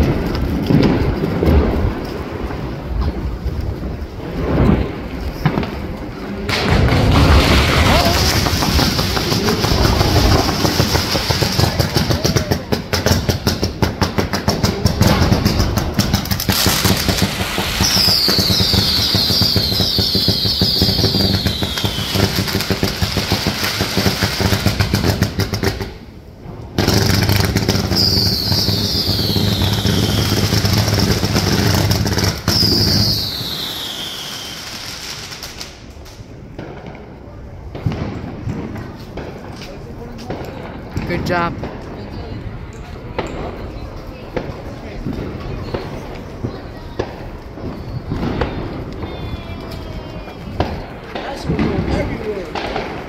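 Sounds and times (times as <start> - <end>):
fireworks crackling pops: 0.0 - 53.0
falling firework whistles: 16.0 - 25.6, 26.8 - 35.9, 43.1 - 53.0.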